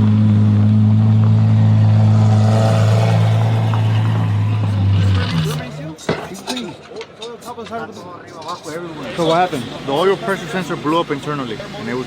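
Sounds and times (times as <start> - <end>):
vehicle engine idling: 8.8 - 12.0.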